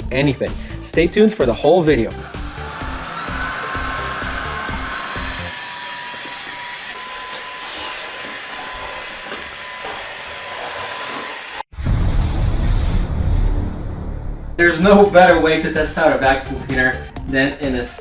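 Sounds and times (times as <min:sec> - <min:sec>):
background music: 0:00.0 - 0:05.5, 0:11.8 - 0:18.0
stick vacuum whining: 0:01.8 - 0:11.7
loud low rumble: 0:11.8 - 0:15.7.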